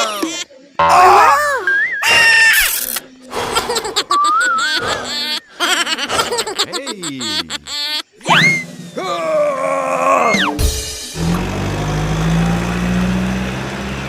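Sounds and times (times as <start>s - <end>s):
cartoon laughter: 0.0s - 0.5s, 1.3s - 8.6s.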